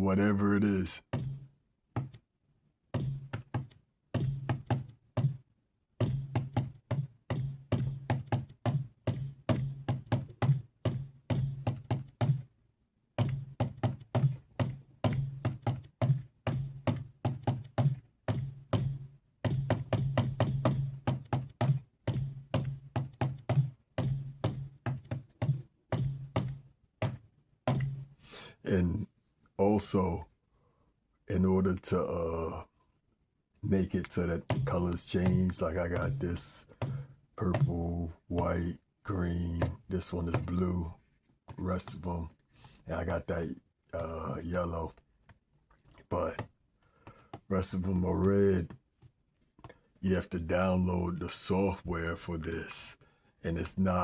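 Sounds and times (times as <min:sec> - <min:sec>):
finger-drummed drum pad beat: 0:13.2 - 0:28.2.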